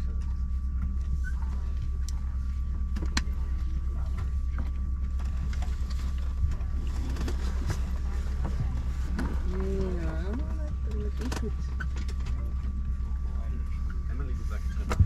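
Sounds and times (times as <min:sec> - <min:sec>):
aircraft cabin hum: 0:00.0 - 0:15.0.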